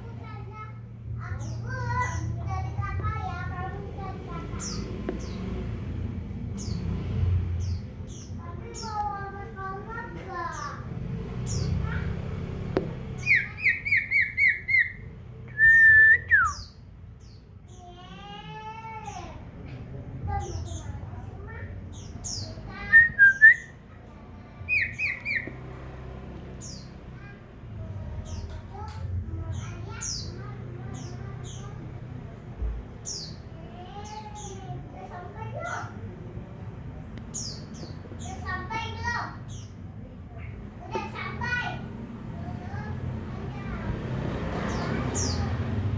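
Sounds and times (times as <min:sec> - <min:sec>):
bird whistling song: 0:13.2 - 0:16.8, 0:22.3 - 0:23.8, 0:24.7 - 0:25.6.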